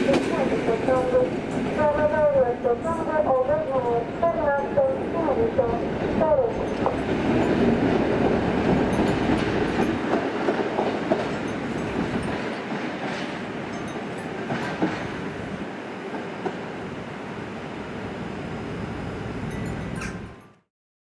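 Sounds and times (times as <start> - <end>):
train wheels clattering over joints: 6.6 - 15.2.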